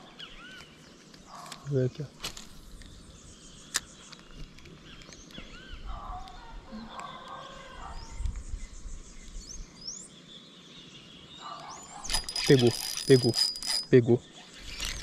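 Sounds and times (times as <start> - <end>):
birds chirping: 0.0 - 15.0
sharp click: 12.0 - 13.9.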